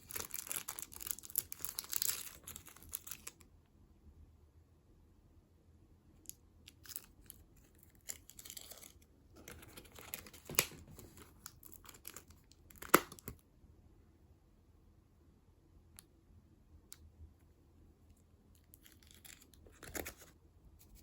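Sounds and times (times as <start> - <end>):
snack packaging crinkling and tearing: 0.0 - 3.5, 6.6 - 13.4, 18.6 - 21.0.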